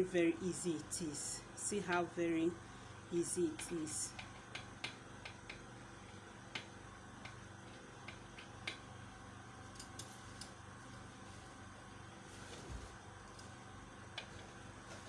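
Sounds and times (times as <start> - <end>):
low steady hum: 0.0 - 15.0
soldering iron clicks and ticks: 3.5 - 5.7, 6.5 - 8.8.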